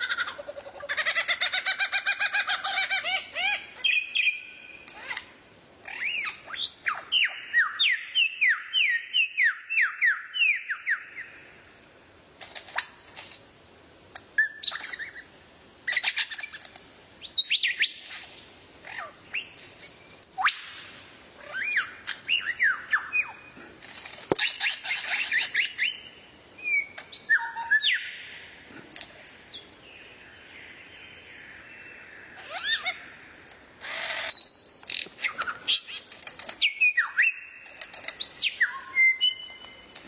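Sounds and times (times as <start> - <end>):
songbird singing: 0.0 - 11.9, 12.6 - 13.6, 14.2 - 40.0
bird chips and calls: 12.5 - 13.5, 14.4 - 15.3, 15.9 - 28.4, 30.8 - 33.1, 33.8 - 40.0.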